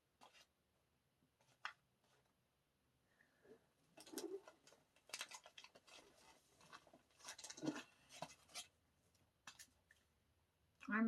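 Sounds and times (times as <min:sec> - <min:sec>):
paper rustling and tapping: 0:01.4 - 0:02.3, 0:04.0 - 0:08.7.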